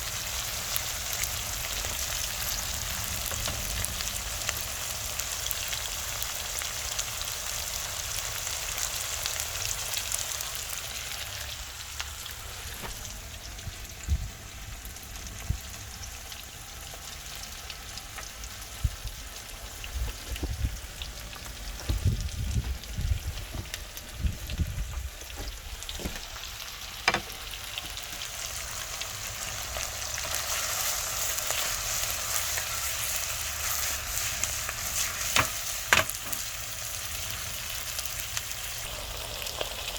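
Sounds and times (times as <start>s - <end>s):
chicken sizzling in a pan: 0.0s - 39.9s.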